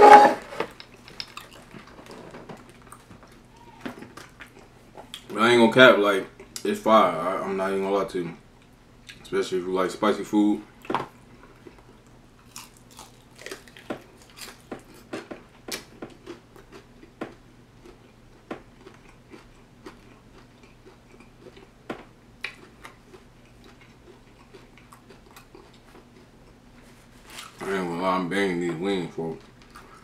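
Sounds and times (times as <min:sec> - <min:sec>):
chewing and biting crunches: 0:00.7 - 0:05.3, 0:10.8 - 0:21.8, 0:22.4 - 0:27.7, 0:29.4 - 0:30.0.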